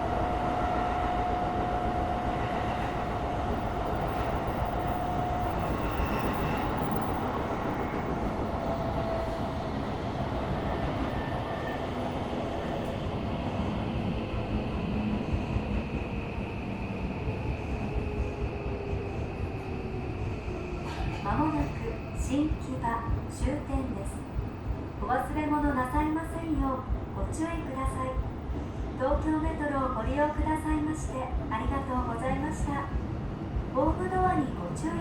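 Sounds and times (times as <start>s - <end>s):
wheels rumbling on rail: 0.0s - 24.9s.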